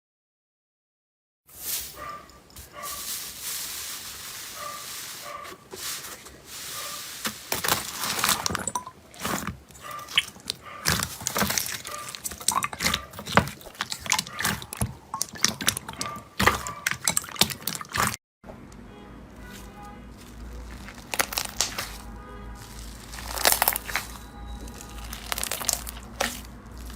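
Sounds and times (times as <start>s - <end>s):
slime being squeezed: 7.0s - 18.2s, 20.2s - 26.9s.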